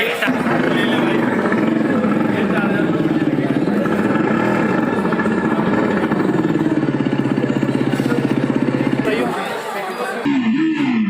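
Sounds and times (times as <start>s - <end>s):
motorcycle engine idling: 0.2s - 9.7s.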